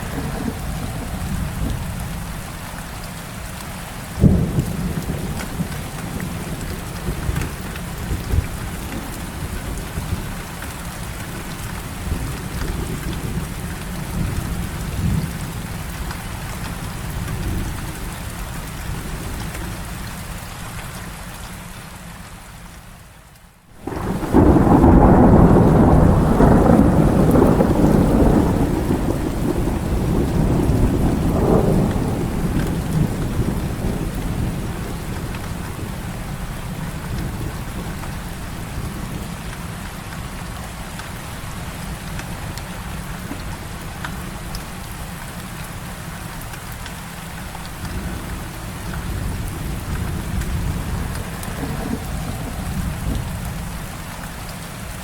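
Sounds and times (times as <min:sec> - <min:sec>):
loud peal of thunder: 0:00.0 - 0:02.1, 0:23.8 - 0:36.0, 0:48.0 - 0:53.9
thunder rumbling: 0:00.0 - 0:02.8, 0:04.1 - 0:18.2, 0:23.8 - 0:39.5, 0:47.6 - 0:54.4
heavy rain falling: 0:00.0 - 0:55.0.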